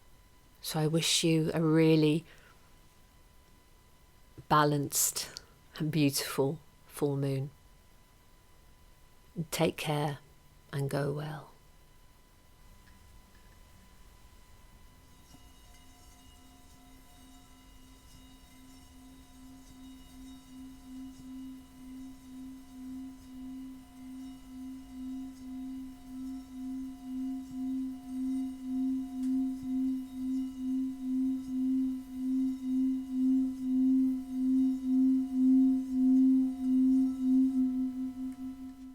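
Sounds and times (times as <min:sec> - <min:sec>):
singing bowl low wavering tone: 0:13.1 - 0:38.9.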